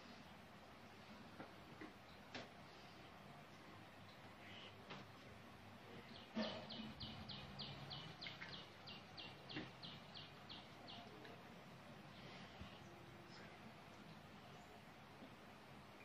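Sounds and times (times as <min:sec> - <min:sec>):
faint room hum: 0:00.0 - 0:16.0
bird chirping: 0:06.0 - 0:11.4.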